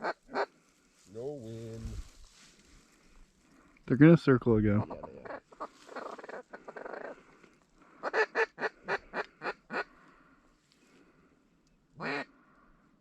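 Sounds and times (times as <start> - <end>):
geese honking: 0.0 - 0.6, 4.8 - 7.3, 7.9 - 10.0.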